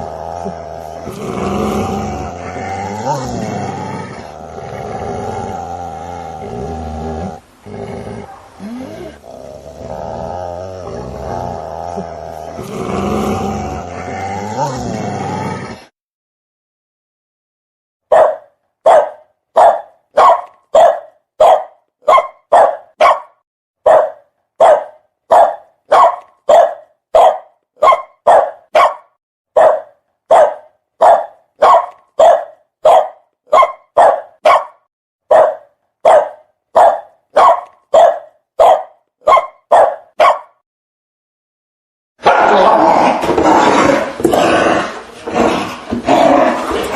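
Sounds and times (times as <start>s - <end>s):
dog barking loudly: 8.2s - 8.6s, 18.1s - 40.6s.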